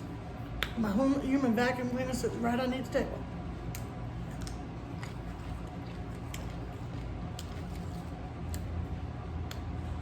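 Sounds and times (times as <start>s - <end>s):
chewing sandwich: 3.6s - 9.8s.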